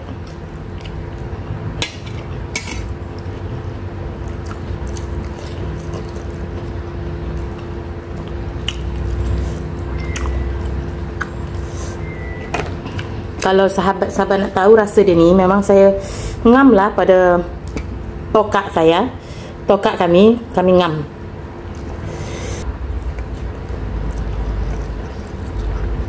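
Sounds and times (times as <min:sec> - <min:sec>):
wet chewing mouth sounds: 0:00.0 - 0:01.3, 0:02.9 - 0:13.5, 0:21.4 - 0:26.0
sharp mouth clicks: 0:08.2 - 0:09.3.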